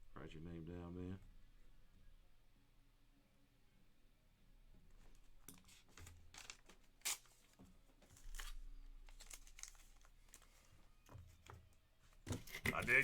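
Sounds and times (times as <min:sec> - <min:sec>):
cards and packaging rustling: 0:05.0 - 0:13.0.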